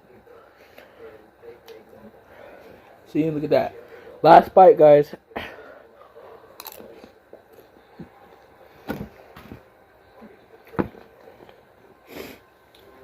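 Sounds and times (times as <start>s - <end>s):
person chewing: 6.6s - 7.7s.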